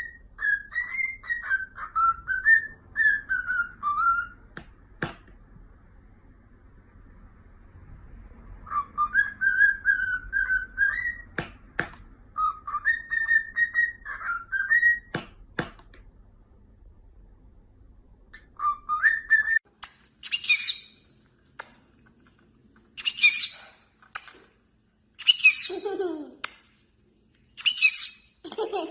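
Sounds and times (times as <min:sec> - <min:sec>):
parrot whistling a tune: 0:00.0 - 0:04.5, 0:08.6 - 0:11.4, 0:12.3 - 0:15.1, 0:18.4 - 0:19.6, 0:20.2 - 0:21.0, 0:23.0 - 0:23.6, 0:27.6 - 0:28.3.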